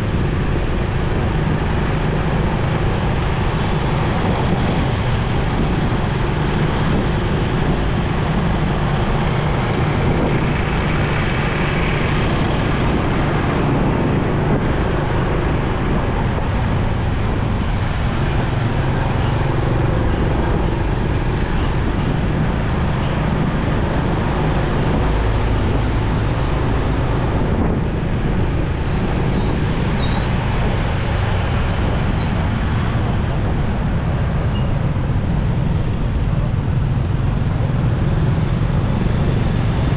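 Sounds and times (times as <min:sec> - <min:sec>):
road and wind noise: 0:00.0 - 0:39.9
surrounding traffic: 0:00.0 - 0:39.9.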